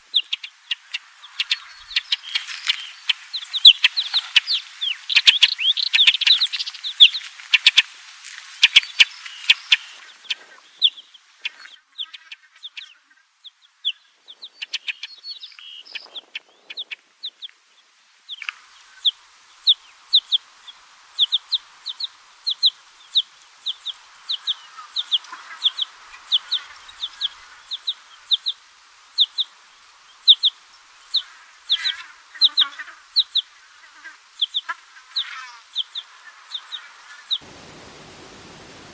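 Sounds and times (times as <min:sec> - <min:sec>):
songbird chirping: 0:00.0 - 0:28.6.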